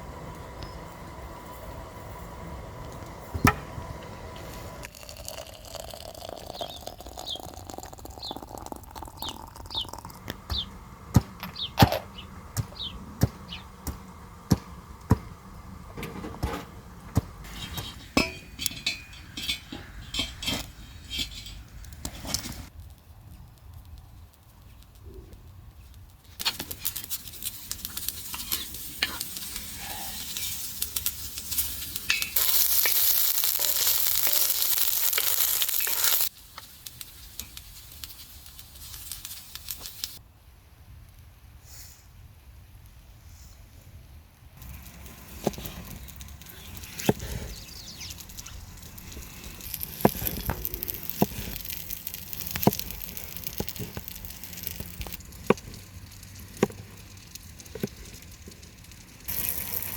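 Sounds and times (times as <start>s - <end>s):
food sizzling in a pan: 4.9s - 10.1s, 27.5s - 40.2s, 44.6s - 55.2s, 59.3s - 59.9s
cookware and utensils clinking: 4.9s - 10.2s, 17.5s - 21.7s, 32.0s - 36.3s.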